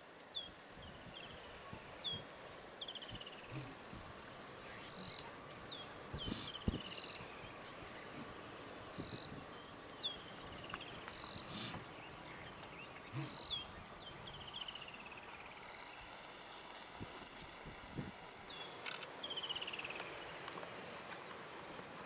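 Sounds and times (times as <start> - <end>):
birds calling with trills: 0.4 - 16.0.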